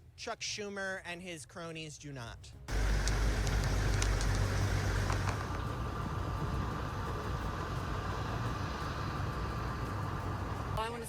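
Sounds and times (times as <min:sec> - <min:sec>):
faint clicks: 0:02.7 - 0:05.8
noisy hiss: 0:02.7 - 0:11.0
road traffic rumble: 0:02.7 - 0:11.0.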